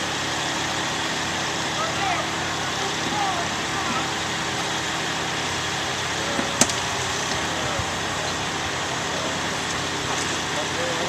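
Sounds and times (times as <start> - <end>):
engine idling: 0.0 - 11.0
faint distant voices: 1.7 - 4.7.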